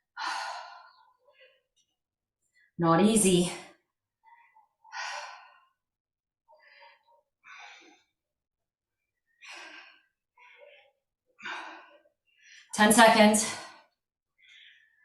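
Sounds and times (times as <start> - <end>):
woman breathing hard: 0.0 - 1.7, 4.2 - 8.3, 9.2 - 12.7.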